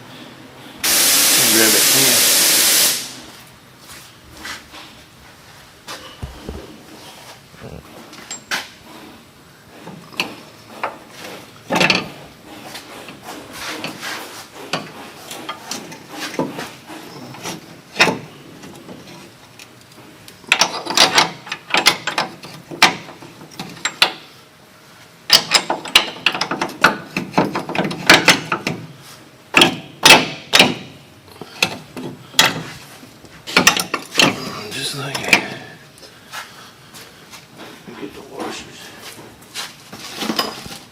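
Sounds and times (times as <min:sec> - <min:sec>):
tools and metal parts clanking: 0:08.2 - 0:08.6, 0:33.5 - 0:34.4, 0:40.0 - 0:40.9.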